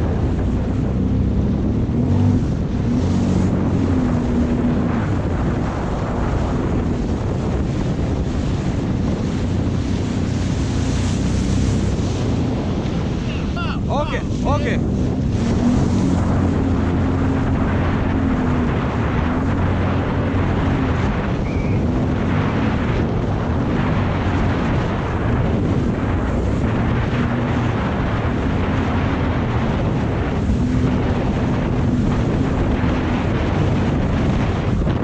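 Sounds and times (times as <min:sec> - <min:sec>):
jet ski engine running: 0:00.0 - 0:35.0
wind noise on microphone: 0:00.0 - 0:35.0.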